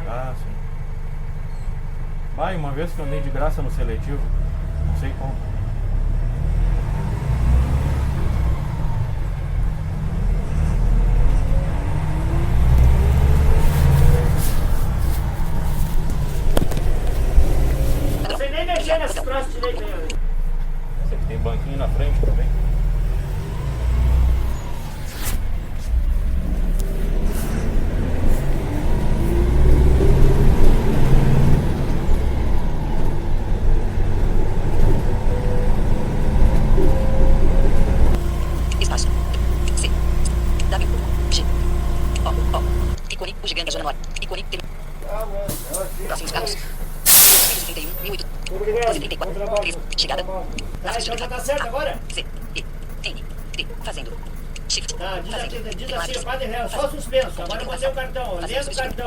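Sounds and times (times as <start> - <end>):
bus engine rumble: 0.0 - 59.0
engine whine rising in pitch: 3.6 - 18.3, 20.3 - 43.0
brief hissing noises: 45.5 - 48.2.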